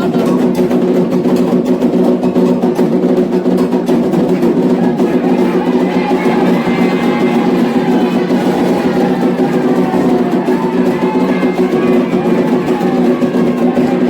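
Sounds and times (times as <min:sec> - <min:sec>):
drums in fast rhythm: 0:00.0 - 0:14.0
voices singing: 0:04.4 - 0:14.0.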